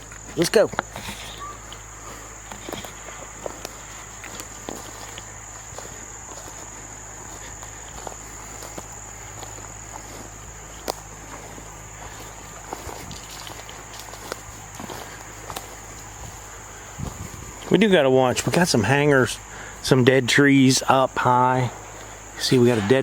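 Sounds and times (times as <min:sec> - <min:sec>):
footsteps crunching through brush: 0:00.0 - 0:23.0
insect chorus: 0:00.0 - 0:23.0.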